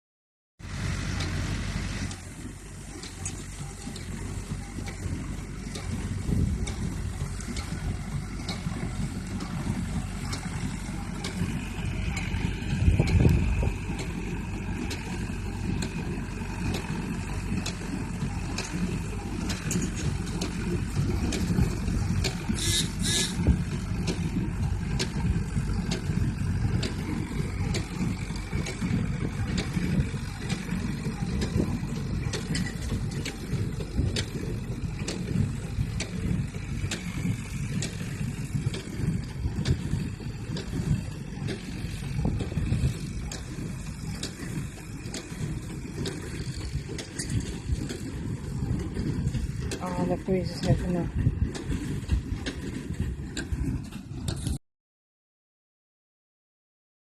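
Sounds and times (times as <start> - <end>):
hay baler working: 0.6 - 54.6
tractor engine running: 0.6 - 54.6.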